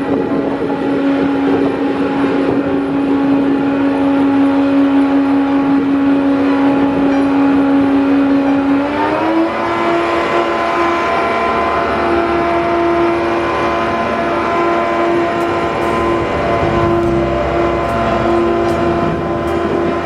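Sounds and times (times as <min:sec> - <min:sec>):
vehicle engine humming: 0:12.9 - 0:20.0.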